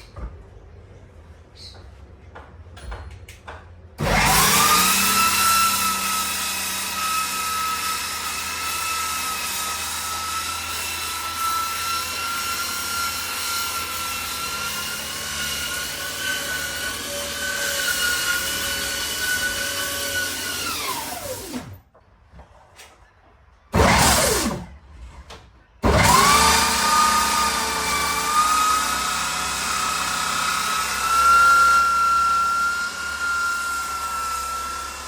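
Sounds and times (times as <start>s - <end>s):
electric sander whining: 4.0s - 21.8s, 25.8s - 35.0s.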